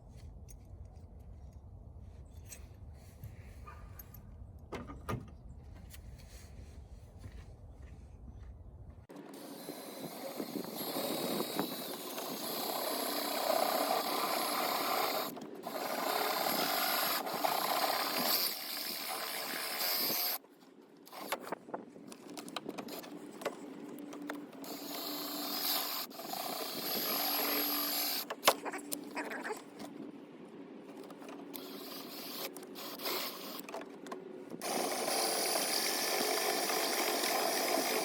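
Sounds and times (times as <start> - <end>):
drill grinding through metal: 9.4 - 20.4, 24.6 - 28.3, 31.6 - 33.7, 34.6 - 38.0.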